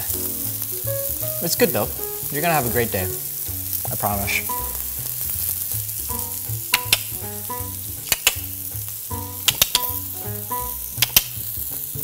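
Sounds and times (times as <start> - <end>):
background music with bass line: 0.0 - 12.0
food sizzling on a griddle: 0.0 - 12.0
fat popping: 6.1 - 11.5.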